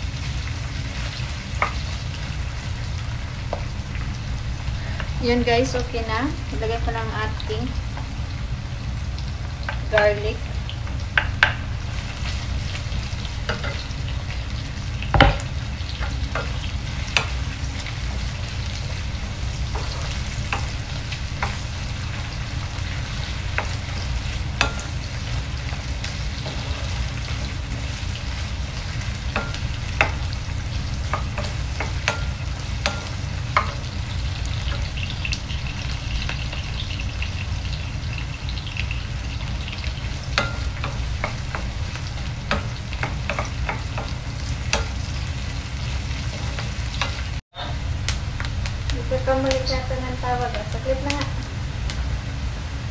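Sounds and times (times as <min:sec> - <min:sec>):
onions sizzling in a frying pan: 0:00.0 - 0:52.9
steady low hum: 0:00.0 - 0:52.9
wooden spatula scraping a pan: 0:19.5 - 0:20.7, 0:23.0 - 0:30.3.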